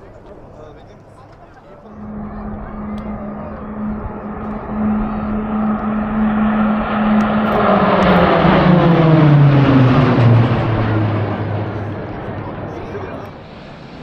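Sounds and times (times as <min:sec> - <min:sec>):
aircraft engine passing: 0:00.0 - 0:14.0.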